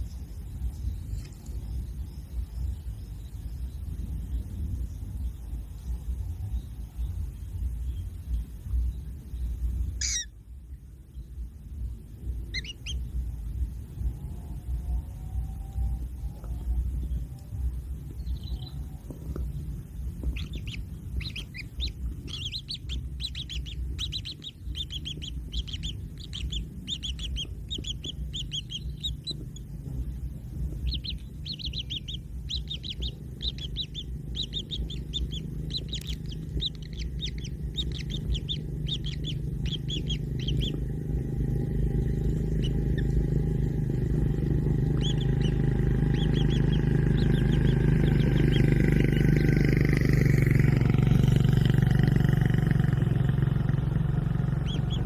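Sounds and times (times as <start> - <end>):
steady low rumble: 0.0 - 55.0
chicks chirping: 6.2 - 10.3, 12.2 - 13.2, 16.2 - 55.0.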